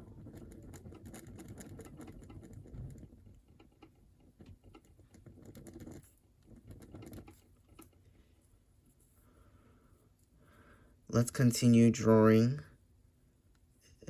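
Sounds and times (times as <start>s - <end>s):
drawing tool scratching paper: 0.0s - 8.0s.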